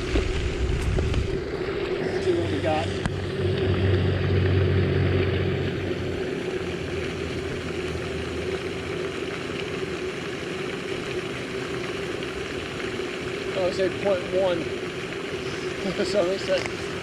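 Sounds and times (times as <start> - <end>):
deep hum: 0.0 - 10.2
engine drone: 0.0 - 17.0.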